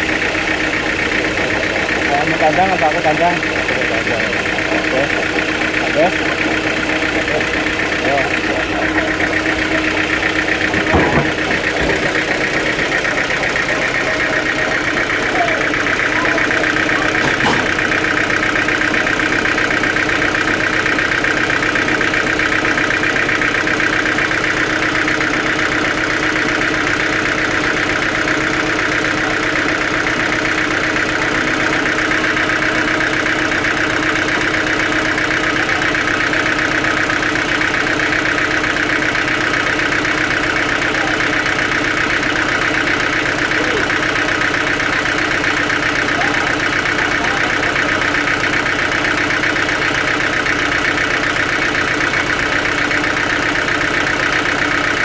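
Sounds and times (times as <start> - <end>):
sawmill machinery running: 0.0 - 55.0.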